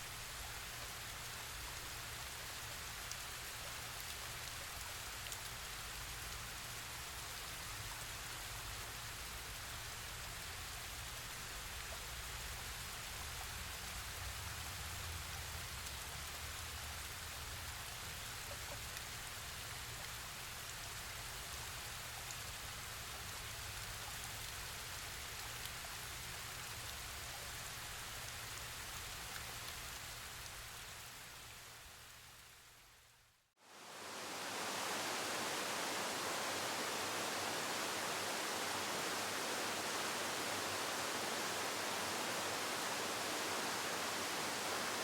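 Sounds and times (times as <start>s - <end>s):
waterfall rushing: 33.6s - 45.0s.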